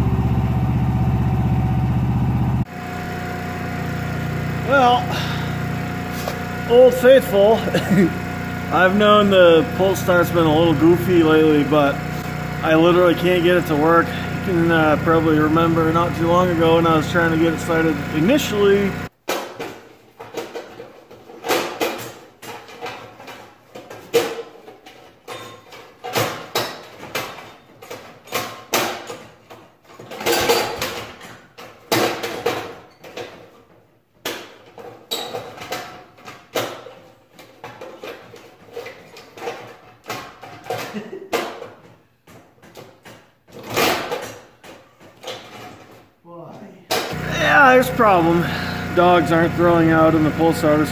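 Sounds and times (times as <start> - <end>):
generator recoil starter rattling: 0.0 - 19.1, 47.0 - 50.9.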